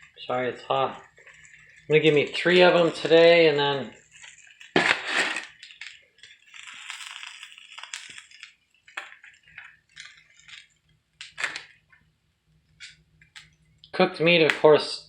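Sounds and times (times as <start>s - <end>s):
scraping or rustling: 0.0s - 10.8s.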